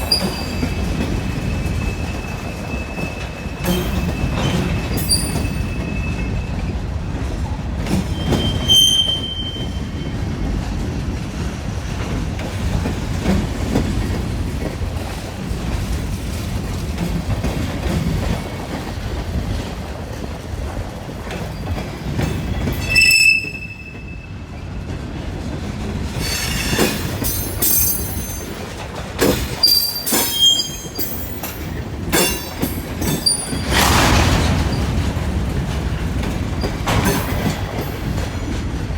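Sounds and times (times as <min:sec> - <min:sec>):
high wheel squeals: 0:00.0 - 0:06.6, 0:08.1 - 0:10.2, 0:22.5 - 0:24.3, 0:26.2 - 0:28.5, 0:29.6 - 0:31.6, 0:32.2 - 0:35.0
wheels clacking over rail joints: 0:24.8 - 0:38.9
freight cars rumbling past: 0:32.8 - 0:38.3.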